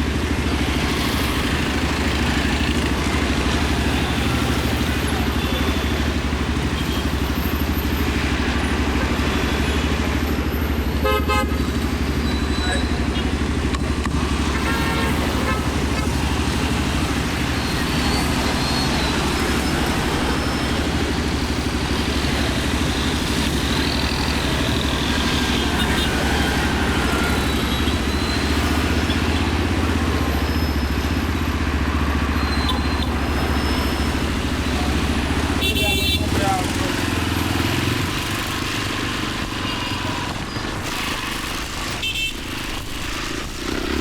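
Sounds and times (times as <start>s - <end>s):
motorcycle engine droning: 11.6s - 44.0s.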